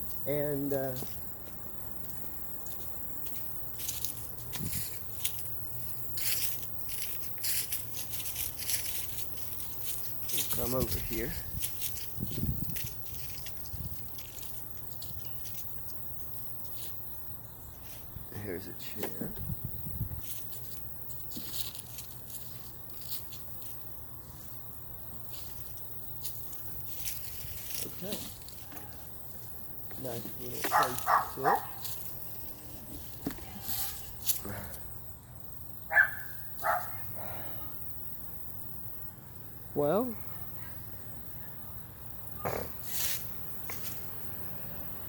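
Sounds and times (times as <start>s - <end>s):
footsteps crunching on dry ground: 0.0s - 18.3s, 19.5s - 34.5s.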